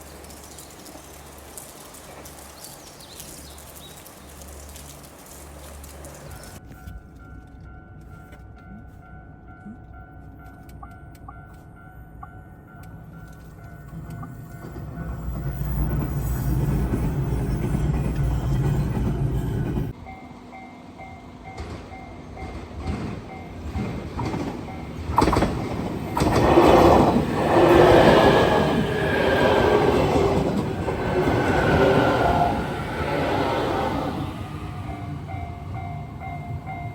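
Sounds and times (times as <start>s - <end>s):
train rumbling on rails: 0.0s - 36.9s
train wheels squealing: 13.9s - 20.0s, 21.5s - 36.9s
wheels clattering over rail joints: 21.5s - 36.8s.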